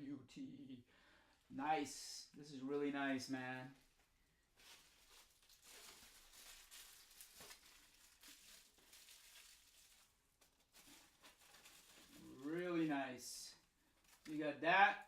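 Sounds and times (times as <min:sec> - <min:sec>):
packing material crinkling: 0:03.8 - 0:12.9, 0:13.7 - 0:14.3.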